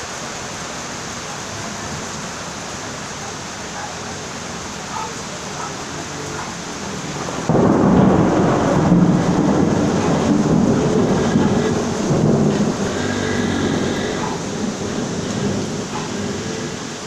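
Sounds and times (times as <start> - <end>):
steady rain falling: 0.0 - 17.0
thunder rumbling: 5.3 - 17.0.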